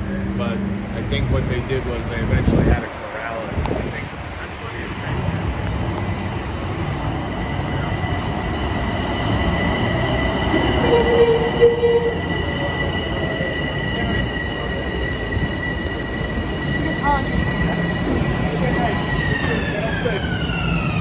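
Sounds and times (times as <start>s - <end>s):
train rumble: 0.0s - 21.0s
wheels squealing: 7.3s - 21.0s.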